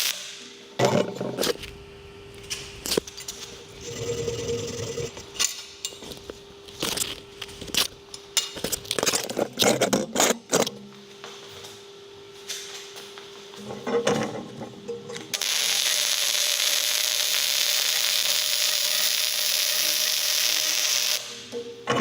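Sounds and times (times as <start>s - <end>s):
steady machine hum: 3.4s - 9.6s.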